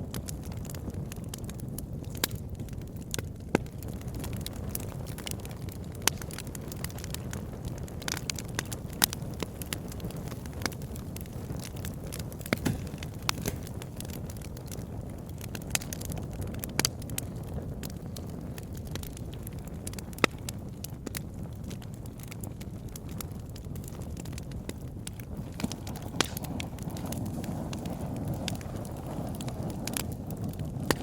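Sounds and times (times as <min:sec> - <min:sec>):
burning wood crackles and pops: 0:00.0 - 0:31.0
campfire low rumble: 0:00.0 - 0:31.0.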